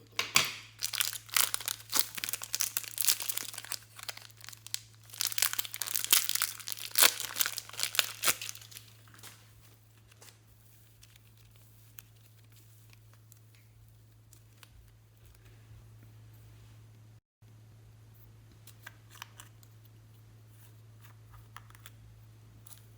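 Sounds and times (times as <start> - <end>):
low steady hum: 0.0 - 22.9
crinkling and crackling: 0.4 - 15.6.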